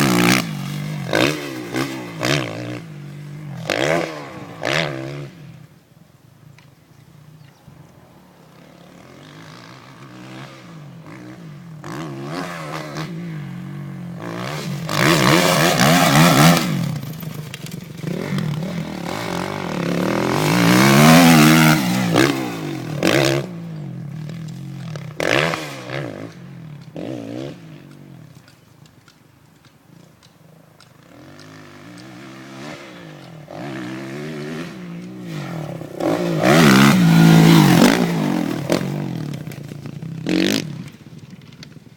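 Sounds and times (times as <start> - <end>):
motocross bike engine revving: 0.0 - 5.6, 8.4 - 28.1, 31.0 - 41.8.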